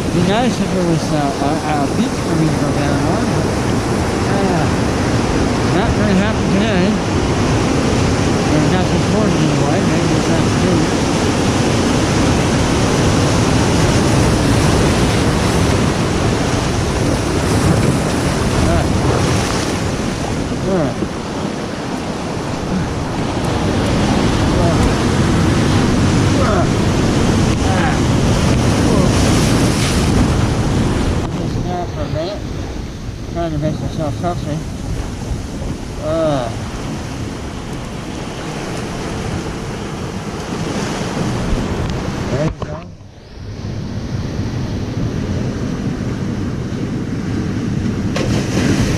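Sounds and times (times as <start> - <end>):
ocean surf breaking: 0.0 - 48.9
wind buffeting microphone: 0.0 - 48.9
man humming: 20.6 - 21.1, 22.6 - 23.2, 24.5 - 25.0.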